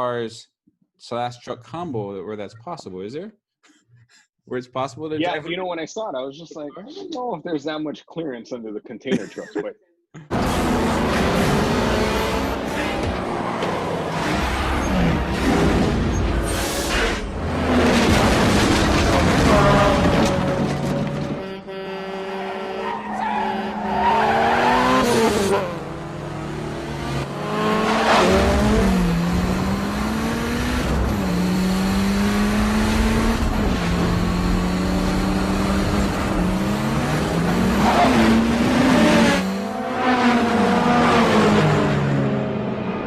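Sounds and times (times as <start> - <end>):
race car engines revving: 10.3 - 43.0.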